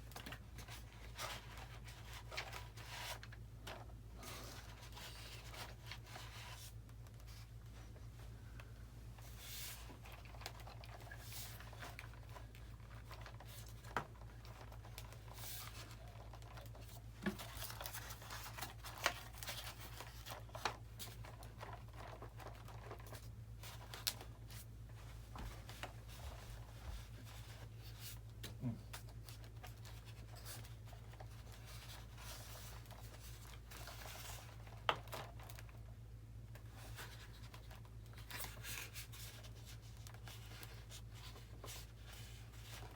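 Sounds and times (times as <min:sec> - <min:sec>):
low electrical hum: 0:00.0 - 0:42.9.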